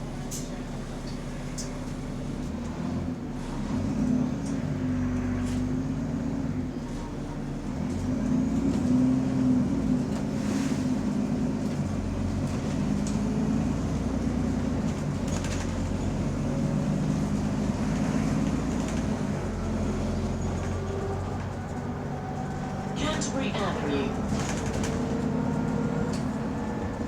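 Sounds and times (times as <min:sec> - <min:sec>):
bus engine running: 0:00.0 - 0:27.0
road noise: 0:00.0 - 0:27.0.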